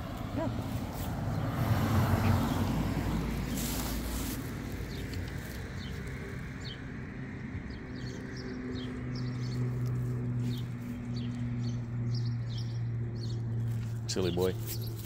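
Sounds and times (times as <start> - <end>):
outdoor background noise: 0.0 - 15.0
small birds chirping: 0.2 - 15.0.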